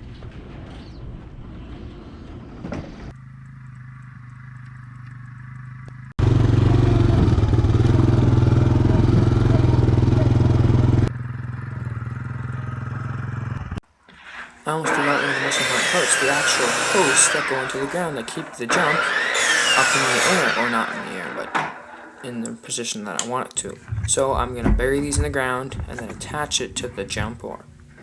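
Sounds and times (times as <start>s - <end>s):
small engine running: 3.1s - 22.5s.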